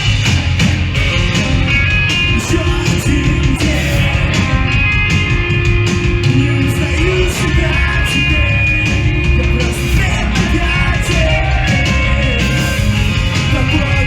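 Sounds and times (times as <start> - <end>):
live punk band playing: 0.0 - 14.0
sung and shouted vocals: 1.6 - 5.0, 6.2 - 14.0.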